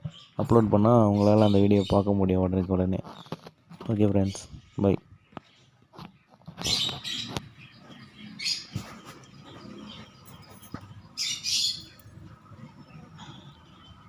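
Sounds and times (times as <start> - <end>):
faint rustling: 2.8 - 11.2.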